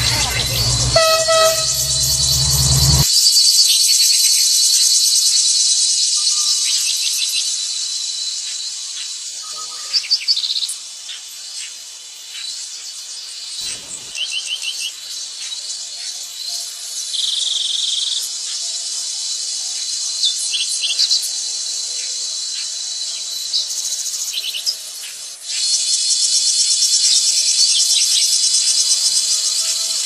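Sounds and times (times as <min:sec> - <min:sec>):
short high chirps: 0:00.0 - 0:03.1
fast-pulsing insect trill: 0:00.0 - 0:03.4, 0:25.5 - 0:30.0
insects trilling: 0:00.0 - 0:30.0.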